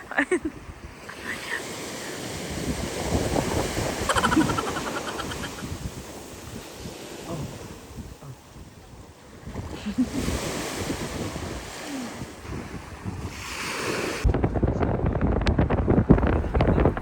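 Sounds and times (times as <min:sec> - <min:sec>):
wind buffeting microphone: 0:00.0 - 0:01.2, 0:02.0 - 0:17.0
sea waves washing on beach: 0:00.0 - 0:14.3.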